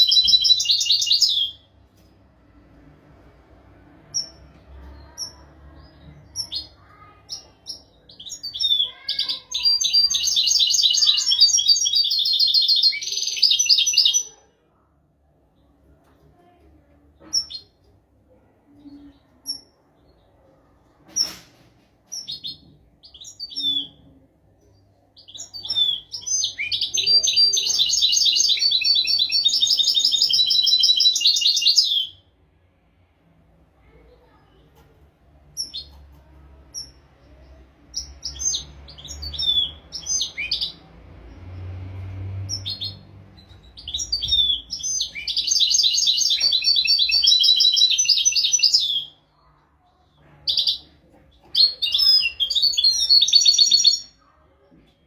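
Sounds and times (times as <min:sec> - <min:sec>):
bird chirps: 0:00.0 - 0:01.7, 0:25.0 - 0:32.2, 0:42.5 - 0:54.3.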